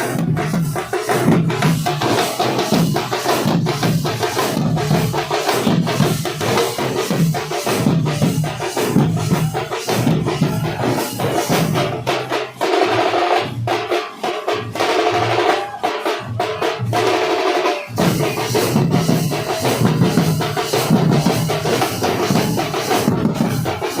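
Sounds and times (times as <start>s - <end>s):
big drums beating: 0.0s - 24.0s
sharp fast drum strokes: 0.0s - 24.0s.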